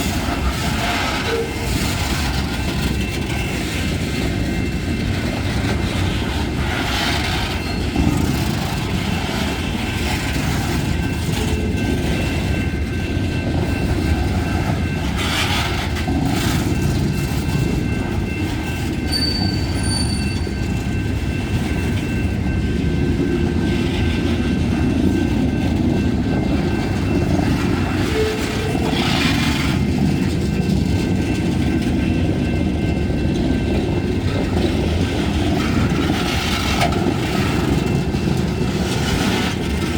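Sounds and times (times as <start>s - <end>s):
train wheels rumbling on rail: 0.0s - 39.9s
wheel squeal: 19.1s - 20.6s.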